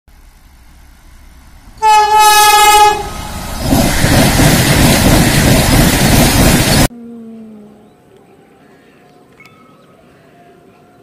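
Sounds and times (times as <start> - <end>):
train rushing past: 0.1 - 6.9
train horn blast: 1.8 - 3.4.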